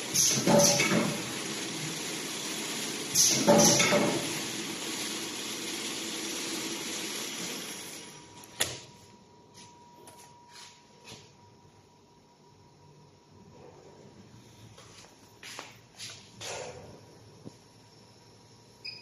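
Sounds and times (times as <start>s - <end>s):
packing machine running: 0.0s - 8.8s.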